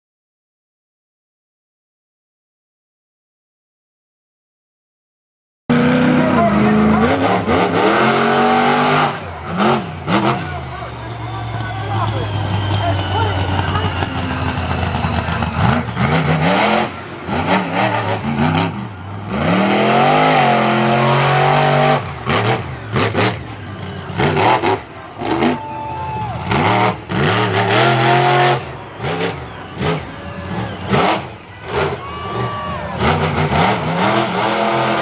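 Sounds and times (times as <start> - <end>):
engine revving: 5.7 - 35.0.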